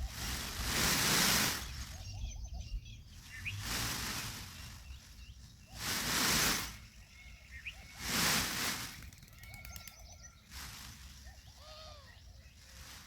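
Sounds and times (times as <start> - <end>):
birds clucking and chirping: 0.0 - 13.0
loud rushing noise bursts: 3.4 - 4.9, 5.7 - 6.9, 8.0 - 9.1.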